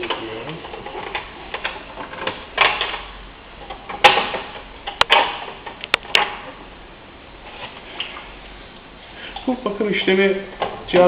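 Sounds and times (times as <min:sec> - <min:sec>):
clicks and knocks of handled parts: 0:00.0 - 0:06.4.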